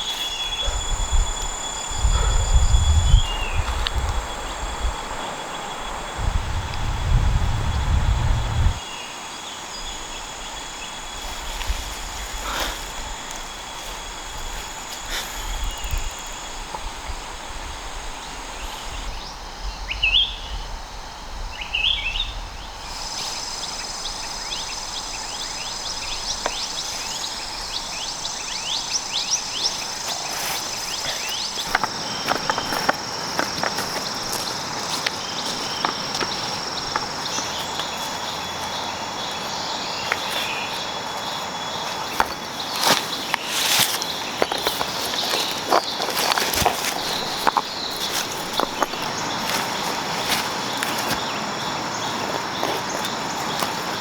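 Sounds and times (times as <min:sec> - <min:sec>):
insects trilling: 0:00.0 - 0:54.0
crackling clicks and rustles: 0:29.8 - 0:38.2, 0:41.4 - 0:51.3.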